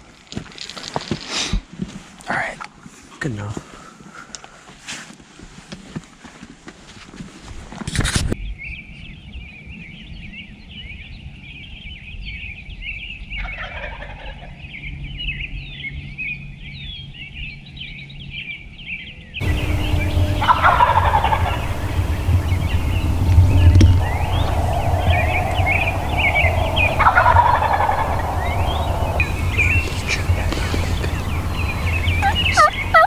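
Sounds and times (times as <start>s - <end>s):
high bird chirping: 19.4s - 33.0s
low rumble: 19.4s - 33.0s
turkeys gobbling: 19.4s - 33.0s.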